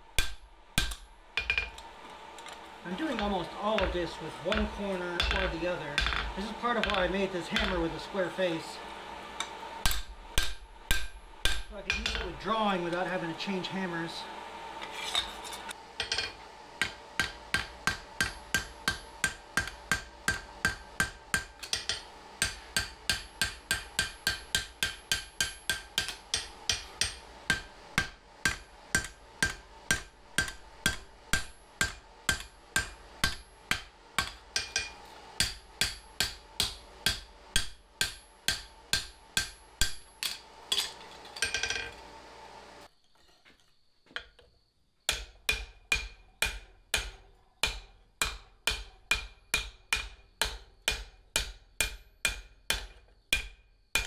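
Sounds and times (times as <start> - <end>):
steady hum: 0.0 - 42.9
hammer striking steel on anvil: 0.1 - 1.9, 2.9 - 8.0, 9.4 - 13.0, 16.0 - 42.0, 45.1 - 54.0.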